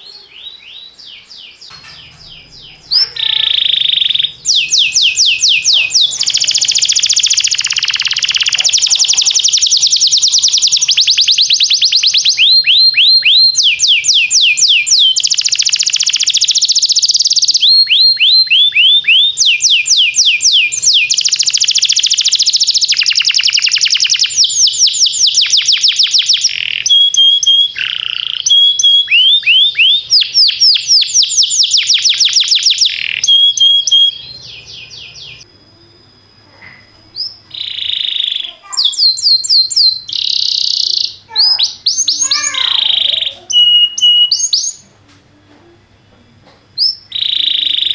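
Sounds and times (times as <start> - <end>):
canary singing trills: 0.0 - 44.9, 46.8 - 47.9.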